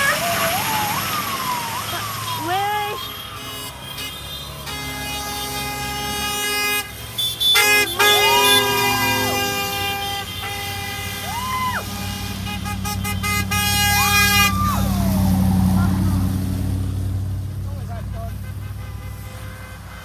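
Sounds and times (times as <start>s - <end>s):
siren whooping: 0.0s - 4.2s, 7.6s - 16.9s
engine rumble: 0.0s - 20.0s
truck air horns blaring: 0.0s - 20.0s.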